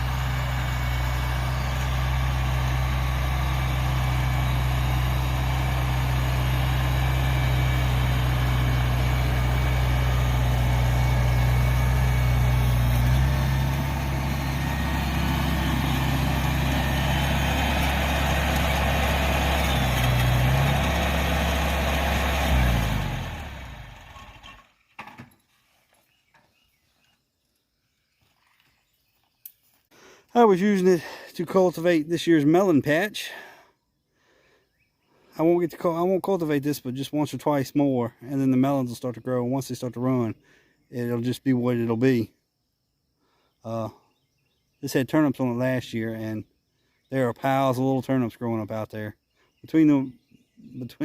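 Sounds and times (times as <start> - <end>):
engine winding down: 0.0 - 24.8
tractor engine running: 0.0 - 25.2.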